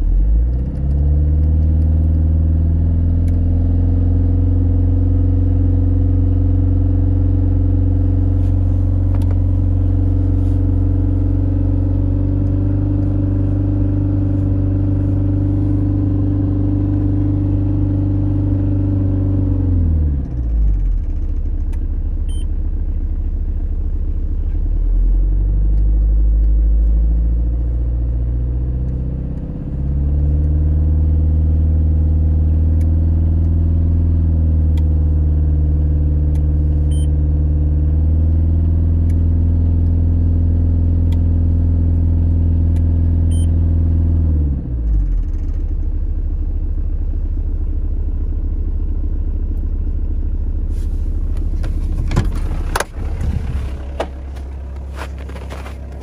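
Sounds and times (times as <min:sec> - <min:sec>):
diesel engine running: 0:00.0 - 0:56.0
handling rustle and clatter: 0:50.7 - 0:56.0.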